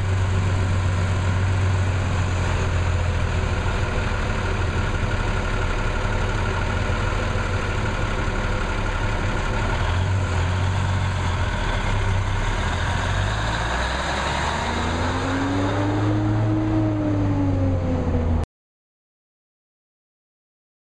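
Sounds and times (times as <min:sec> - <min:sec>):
diesel truck engine running: 0:00.0 - 0:18.4.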